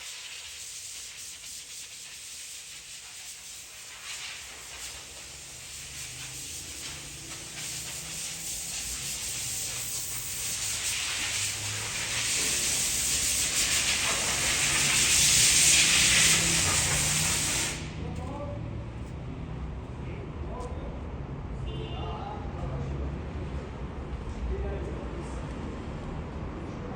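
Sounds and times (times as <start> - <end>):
pressure washer spraying water: 0.0 - 17.9.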